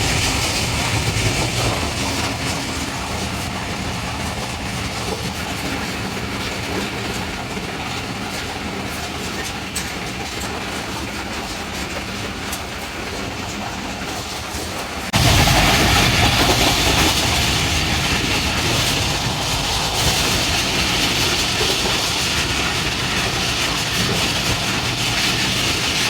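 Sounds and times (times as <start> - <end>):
clickety-clack of track: 0.0 - 26.0
train wheels rumbling on rails: 0.0 - 26.0.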